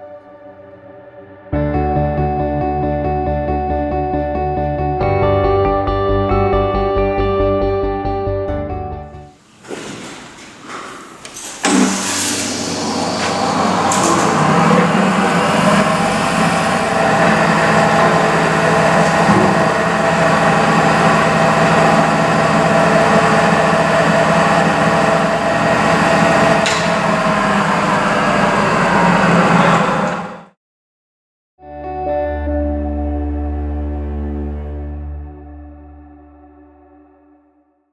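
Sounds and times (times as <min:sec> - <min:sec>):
bench grinder humming and whining: 0:11.5 - 0:30.4.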